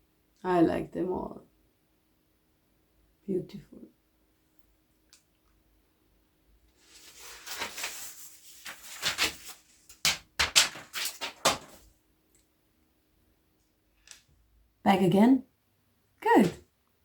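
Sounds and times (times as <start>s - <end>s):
rustling handling noises: 6.7s - 11.9s.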